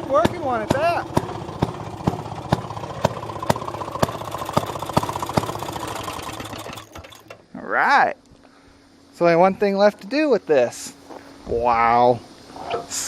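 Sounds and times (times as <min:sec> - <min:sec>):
small two-stroke engine running: 0:00.0 - 0:07.4.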